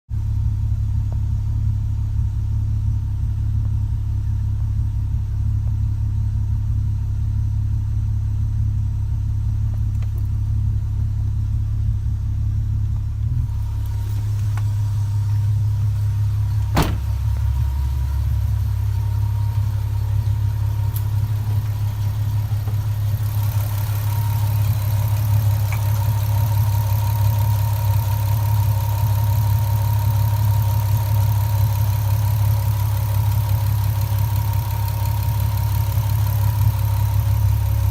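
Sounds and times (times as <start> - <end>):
car engine idling: 0.1 - 37.9.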